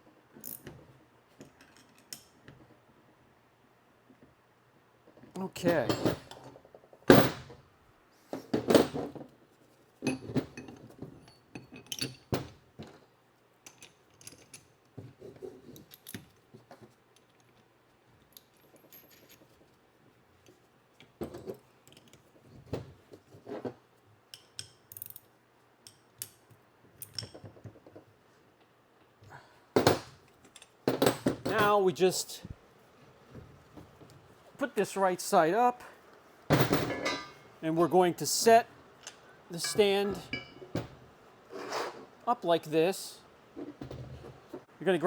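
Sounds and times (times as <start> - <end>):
metal parts clinking: 39.0 - 40.6.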